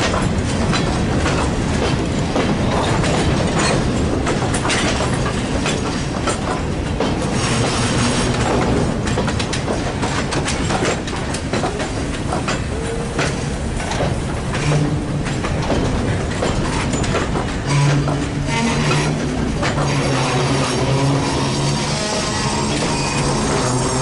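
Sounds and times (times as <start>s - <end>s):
train wheels clacking on rails: 0.0s - 24.0s.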